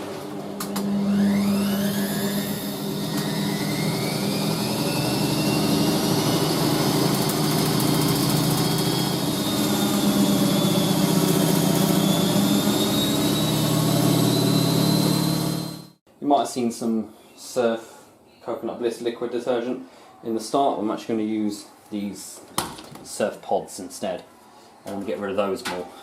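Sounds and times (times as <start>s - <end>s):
washing machine spinning: 0.0s - 16.0s.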